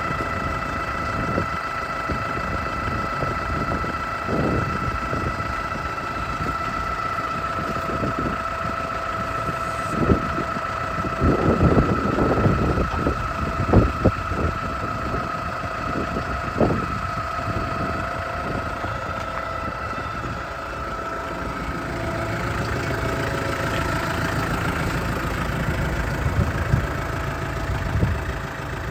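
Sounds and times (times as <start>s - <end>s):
tractor diesel engine idling: 0.0s - 28.9s
high whine: 2.1s - 28.8s.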